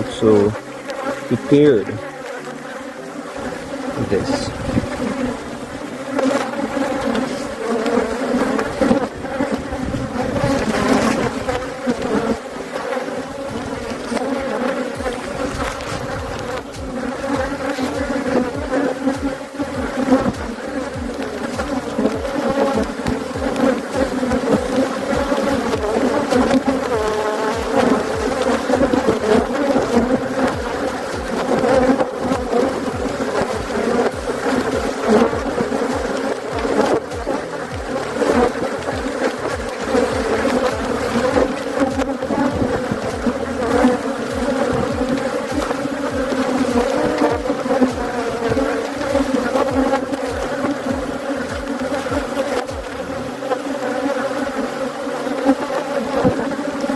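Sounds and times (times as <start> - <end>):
honeybees buzzing: 0.0 - 56.9.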